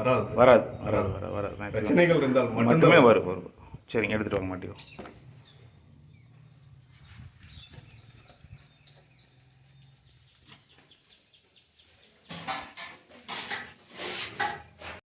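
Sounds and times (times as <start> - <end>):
bird calls: 4.7 - 12.8.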